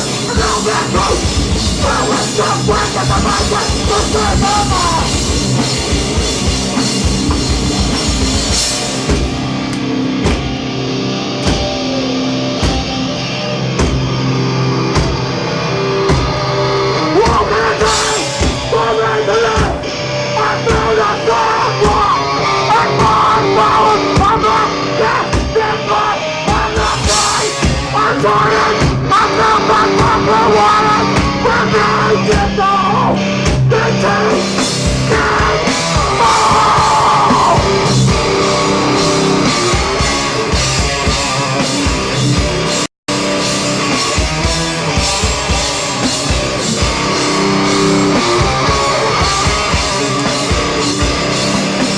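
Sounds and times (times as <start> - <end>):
loud distorted guitars: 0.0 - 51.9
shouted vocals: 17.0 - 34.4, 35.1 - 39.4.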